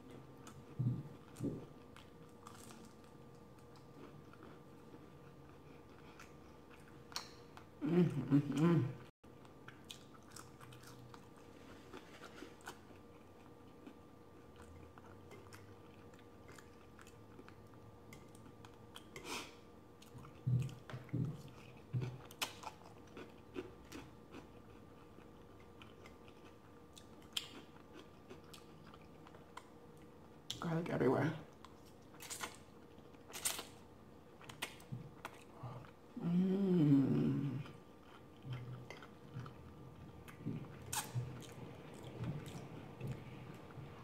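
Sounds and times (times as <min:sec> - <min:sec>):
person chewing crispy food: 0:00.0 - 0:07.7, 0:09.3 - 0:30.6, 0:31.5 - 0:36.1, 0:37.5 - 0:44.0.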